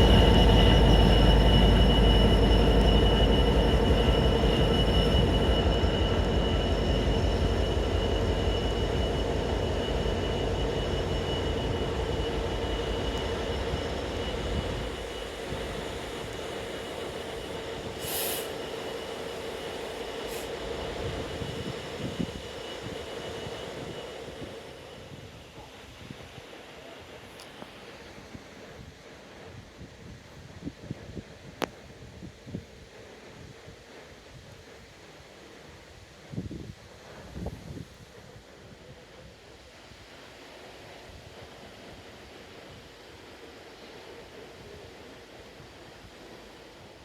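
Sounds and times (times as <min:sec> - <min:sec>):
train wheels squealing on rails: 0:00.0 - 0:28.3
low train rumble: 0:00.0 - 0:47.0.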